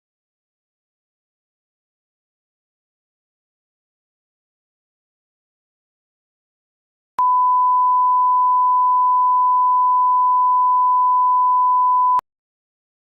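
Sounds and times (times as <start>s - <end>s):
steady sine test tone: 7.2s - 12.2s.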